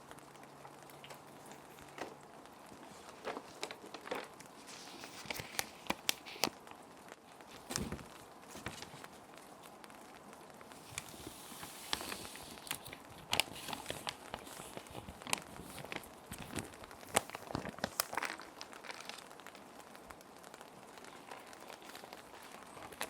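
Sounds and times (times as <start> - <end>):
plastic sheet protectors crinkling: 0.0 - 23.0
rain hiss: 0.0 - 23.0
paper sliding into sleeves: 10.8 - 16.0.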